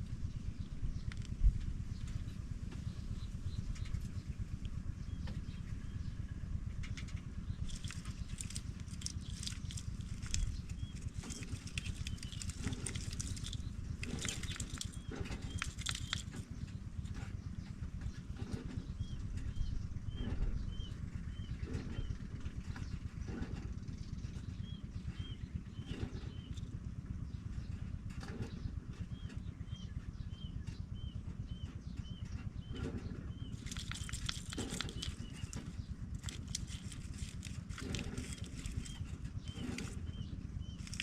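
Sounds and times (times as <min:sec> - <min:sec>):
steady low rumble: 0:00.0 - 0:41.0
rustling clicks: 0:07.0 - 0:16.4, 0:33.5 - 0:40.0, 0:40.8 - 0:41.0
pipits chirping: 0:07.4 - 0:18.2, 0:32.6 - 0:41.0.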